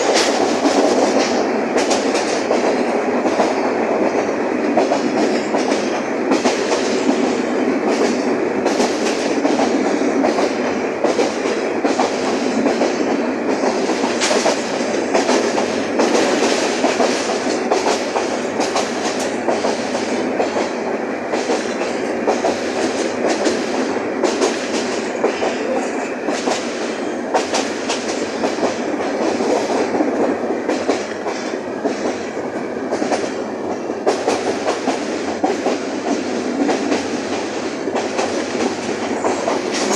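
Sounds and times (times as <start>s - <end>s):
wheels clicking over rail joints: 0.0s - 26.7s
train rumbling clatter: 0.0s - 39.9s.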